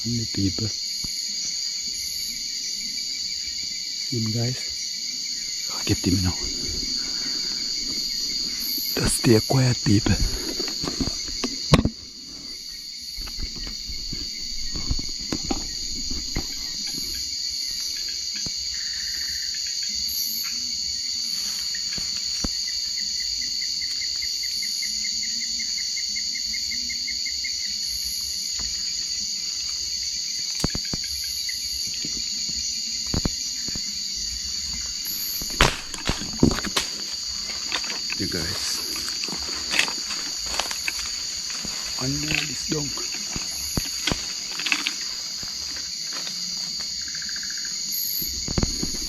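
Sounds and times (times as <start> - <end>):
crickets chirring: 0.0 - 49.0
sharp clicks or knocks: 10.1 - 12.0, 35.4 - 38.2.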